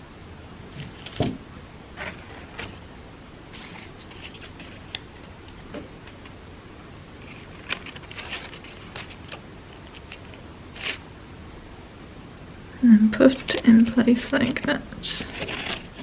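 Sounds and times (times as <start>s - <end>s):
crepe paper crinkling: 3.5s - 6.4s, 7.2s - 11.0s, 15.1s - 16.0s.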